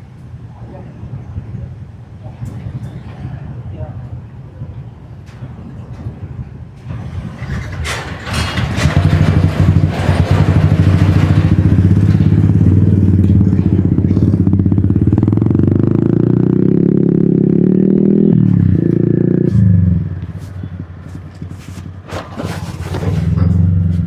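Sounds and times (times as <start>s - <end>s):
motorbike engine: 5.3s - 24.0s.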